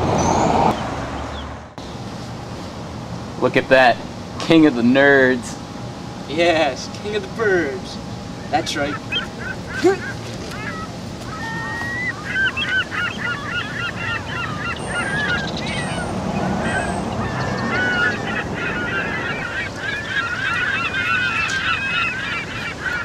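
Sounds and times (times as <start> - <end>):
flock of birds calling: 6.4 - 23.0.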